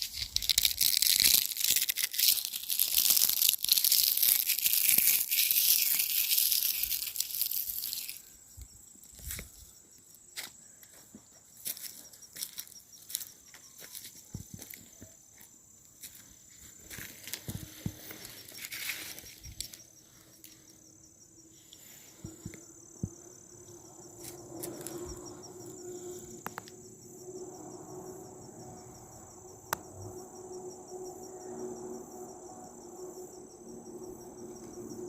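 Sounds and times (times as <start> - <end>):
footsteps in leaf litter: 0.0 - 8.2, 16.0 - 19.7
insects trilling: 0.0 - 35.0.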